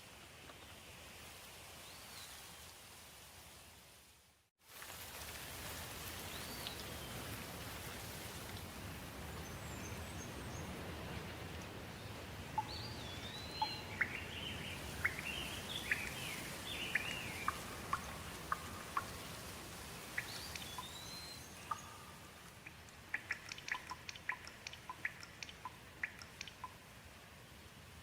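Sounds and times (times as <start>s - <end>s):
steady rain: 0.0s - 28.0s
birds chirping: 9.4s - 26.8s.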